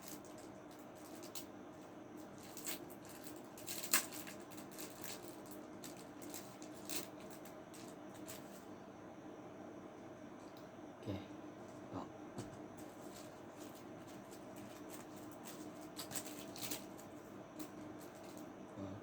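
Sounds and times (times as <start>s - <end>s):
packaging rustling and clicking: 2.2s - 8.6s, 12.8s - 18.5s.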